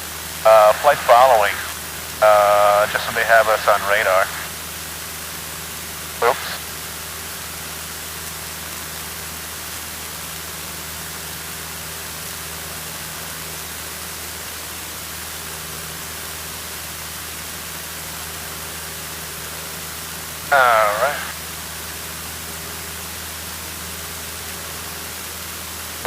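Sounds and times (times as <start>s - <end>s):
airplane cabin hiss: 0.0s - 4.7s, 6.2s - 6.7s, 20.5s - 21.4s
engine and propeller drone: 0.0s - 26.0s.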